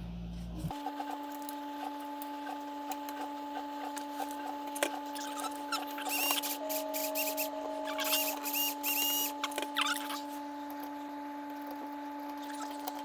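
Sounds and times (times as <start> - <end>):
steady hum: 1.9 - 13.0.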